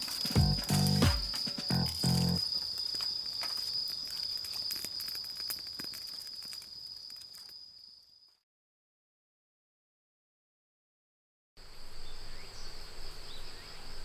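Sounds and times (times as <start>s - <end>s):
insects trilling: 0.0s - 8.4s.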